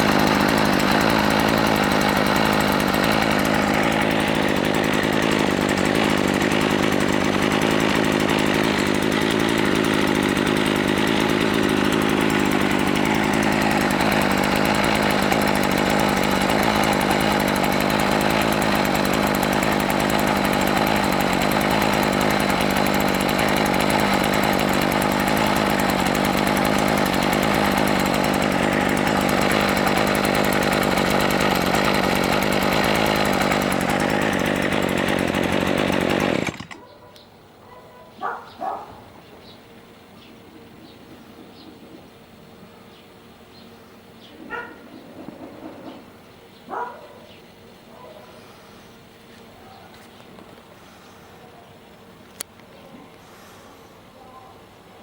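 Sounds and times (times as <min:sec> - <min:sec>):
brush cutter engine running: 0:00.0 - 0:37.0, 0:44.4 - 0:47.4.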